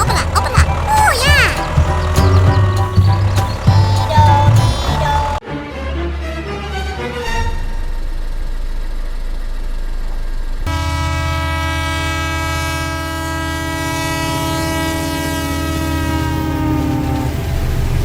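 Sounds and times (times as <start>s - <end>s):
loud horn-like tone: 10.7s - 16.9s.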